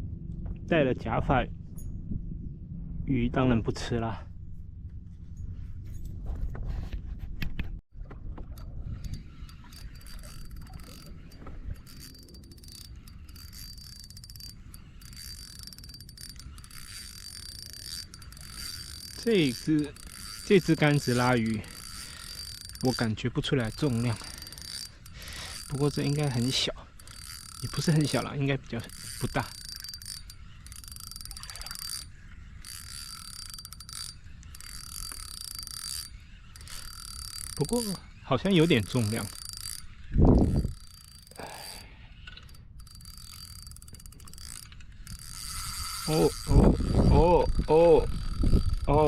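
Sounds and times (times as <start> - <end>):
fishing reel cranking: 8.5 - 49.0.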